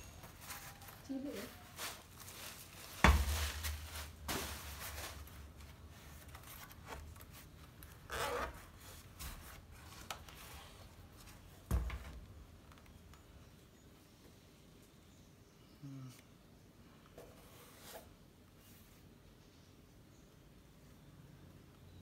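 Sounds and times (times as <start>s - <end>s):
heavy thump: 3.0s - 4.5s.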